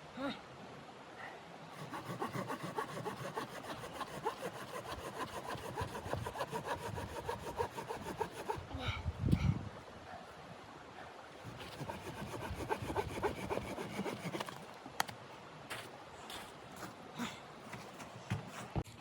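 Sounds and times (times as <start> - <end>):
saw cutting wood: 1.8 - 8.6, 11.4 - 14.5.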